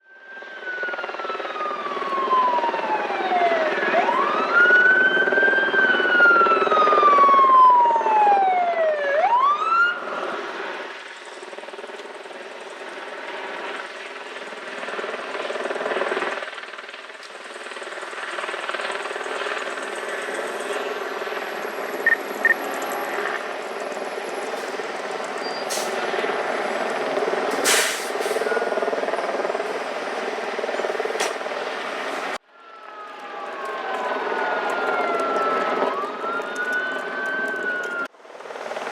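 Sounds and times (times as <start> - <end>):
fire engine diesel running: 16.9 - 38.9
sharp hisses: 25.4 - 26.2, 27.5 - 28.6
siren winding: 32.8 - 38.1.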